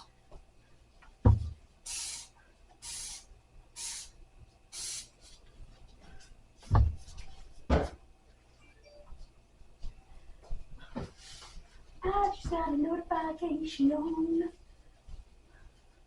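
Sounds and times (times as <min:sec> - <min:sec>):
spray bottle squirts: 0:01.9 - 0:04.1, 0:04.8 - 0:05.4.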